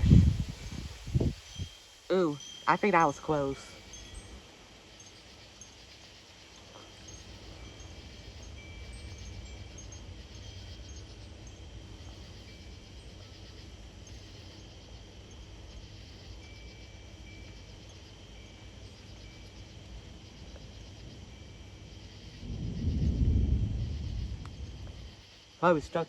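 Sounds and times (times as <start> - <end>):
thunder rumbling: 0.0 - 1.4, 22.2 - 25.2
low wind rumble: 0.0 - 5.8, 6.6 - 26.0
insects chirping and trilling: 0.0 - 26.0.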